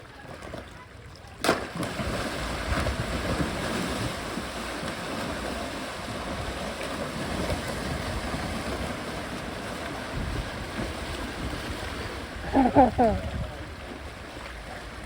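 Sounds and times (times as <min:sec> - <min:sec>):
rushing water: 0:00.0 - 0:15.0
wind buffeting microphone: 0:05.2 - 0:15.0.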